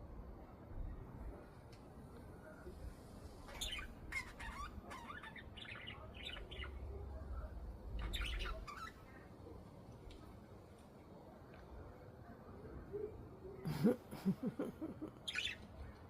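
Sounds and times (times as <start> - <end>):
budgerigars chirping and squawking: 3.5 - 6.8, 8.0 - 9.0, 15.3 - 15.6.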